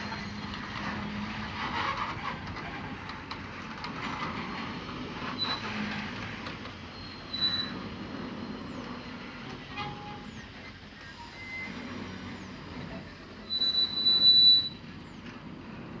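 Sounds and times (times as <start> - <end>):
heavy vehicle rumbling: 0.0 - 16.0
high-pitched metallic squeal: 13.5 - 14.8.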